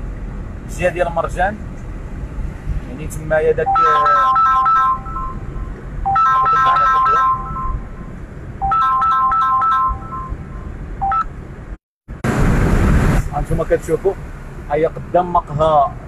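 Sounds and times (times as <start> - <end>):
phone ringtone melody: 3.7 - 7.9, 8.6 - 11.3.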